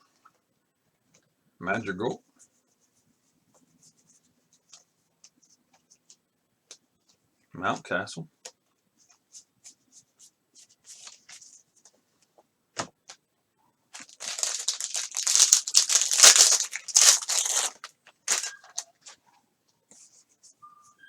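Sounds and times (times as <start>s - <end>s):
foil wrapper tearing and crinkling: 14.0s - 18.9s.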